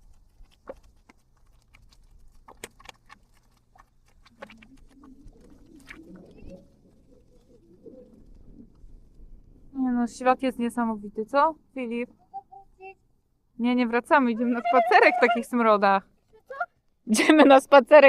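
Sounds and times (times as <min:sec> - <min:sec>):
mud pot bubbling: 0:00.0 - 0:10.8.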